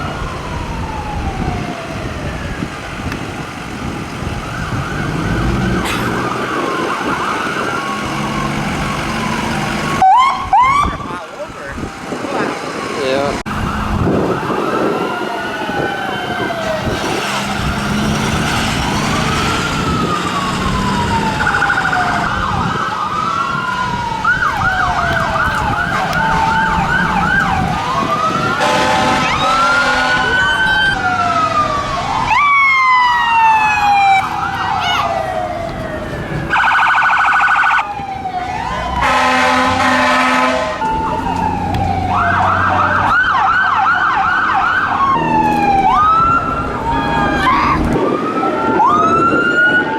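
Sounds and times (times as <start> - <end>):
emergency sirens wailing: 0.0 - 49.9
truck rumble: 0.0 - 49.9
horn blasts: 28.6 - 30.5, 39.0 - 40.9.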